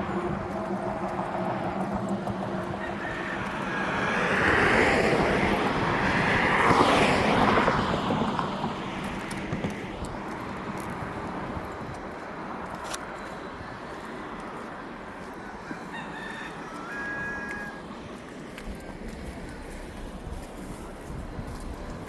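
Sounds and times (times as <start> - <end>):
vehicle engine passing by: 0.0 - 10.4.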